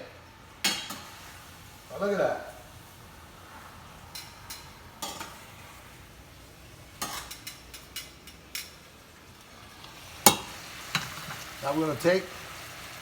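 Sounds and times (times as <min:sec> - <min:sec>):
food sizzling in a frying pan: 0:00.0 - 0:13.0
utensil tapping cookware: 0:04.1 - 0:05.4, 0:09.8 - 0:11.6.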